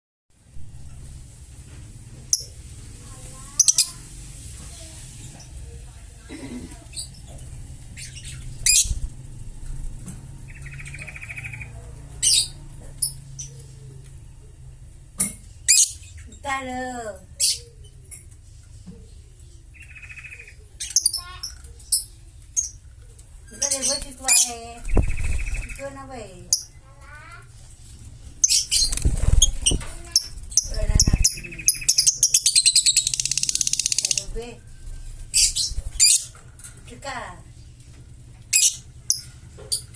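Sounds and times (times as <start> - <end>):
parrot chirping and clicking: 28.4 - 34.3.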